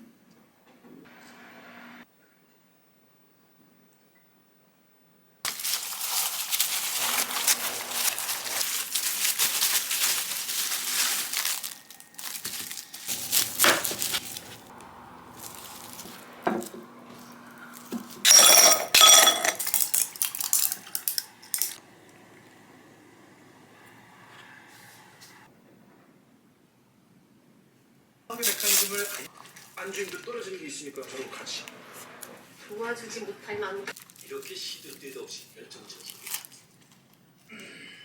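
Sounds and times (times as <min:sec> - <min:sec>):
rustling and scraping: 0:05.5 - 0:21.8
dishes clinking: 0:13.1 - 0:21.8.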